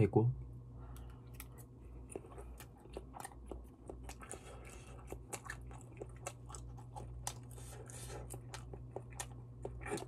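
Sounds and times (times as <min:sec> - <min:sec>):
chewing with wet crunches: 0:01.2 - 0:10.0.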